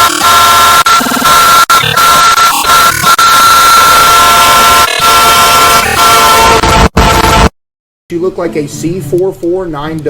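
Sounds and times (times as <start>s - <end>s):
distorted locomotive air horn: 4.1s - 7.5s.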